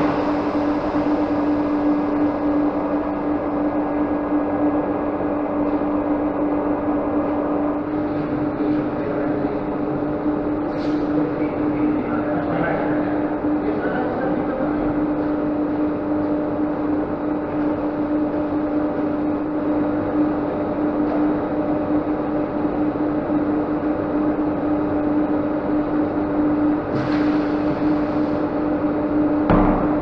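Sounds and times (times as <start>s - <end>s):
machinery motor hum: 0.0s - 30.0s
hiss: 26.9s - 28.5s.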